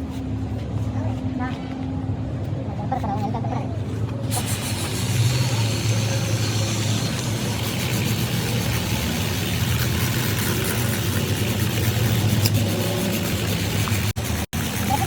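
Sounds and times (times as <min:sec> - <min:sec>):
constant noisy wash: 0:00.3 - 0:15.0
engine humming: 0:04.1 - 0:15.0.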